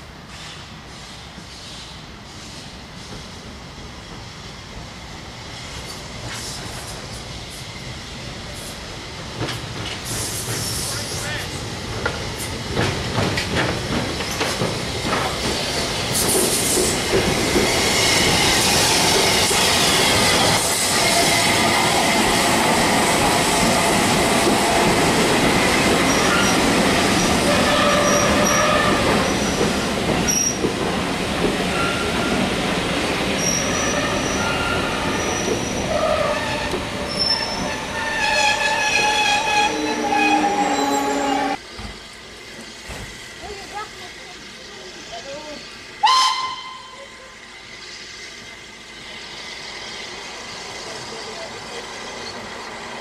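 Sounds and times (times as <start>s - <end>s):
train carriages rumbling past: 5.7s - 53.0s
wheel and brake squeals: 27.5s - 29.7s, 30.3s - 30.7s, 33.4s - 41.6s.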